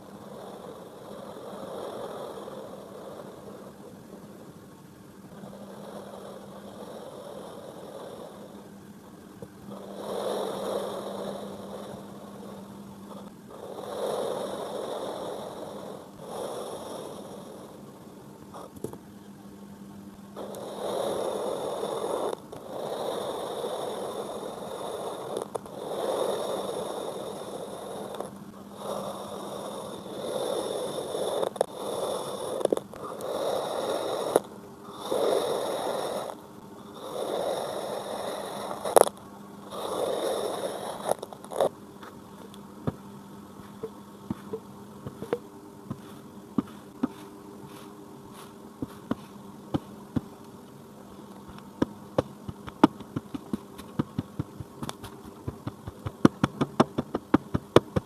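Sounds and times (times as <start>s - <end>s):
kinetic sand scraping by hand: 51.8s - 58.0s.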